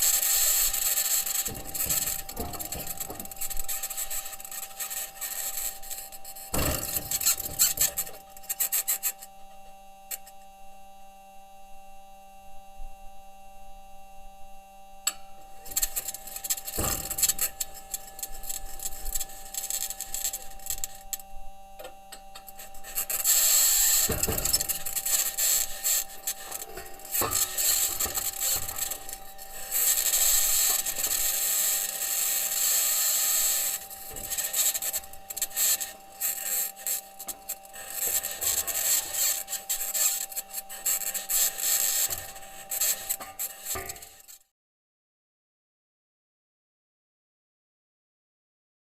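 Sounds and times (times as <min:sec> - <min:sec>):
rover wheels grinding over rocks: 0:00.0 - 0:08.2, 0:22.5 - 0:44.3
high scratchy hiss: 0:00.0 - 0:09.3, 0:15.6 - 0:21.2, 0:22.4 - 0:44.4
steady whining tones: 0:00.0 - 0:44.4.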